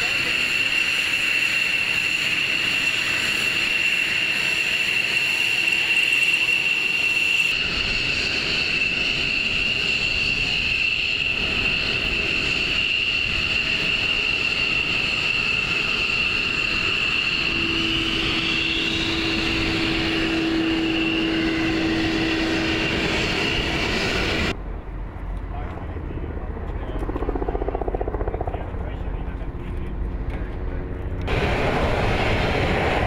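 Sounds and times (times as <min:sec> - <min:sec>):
jet engine whine: 0:00.0 - 0:33.0.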